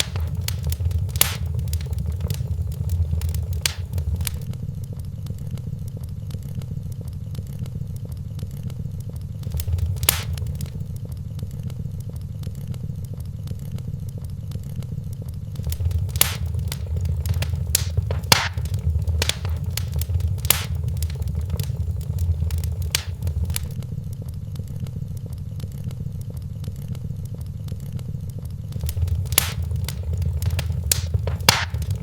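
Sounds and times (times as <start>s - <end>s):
sharp pops of fire: 0.0s - 4.5s, 9.4s - 10.8s, 15.6s - 23.8s, 28.7s - 32.0s
wood fire crackling: 0.0s - 4.5s, 9.4s - 11.0s, 15.6s - 23.8s, 28.7s - 32.0s.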